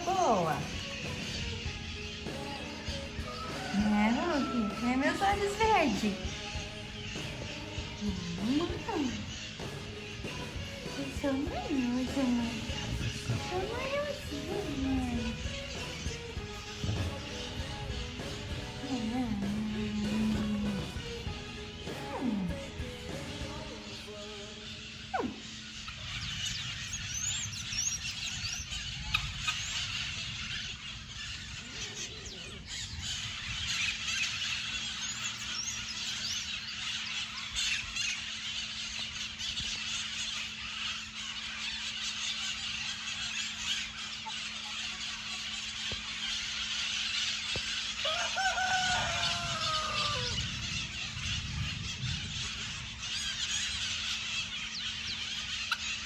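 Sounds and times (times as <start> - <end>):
parrots chattering and squawking: 0.0 - 56.0
rooster crowing: 2.9 - 5.9, 47.9 - 50.7.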